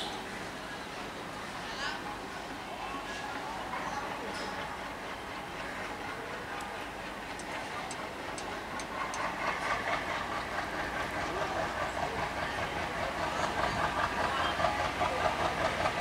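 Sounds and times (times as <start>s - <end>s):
diesel locomotive engine: 0.0s - 16.0s
train wheels clattering over rails: 4.3s - 16.0s.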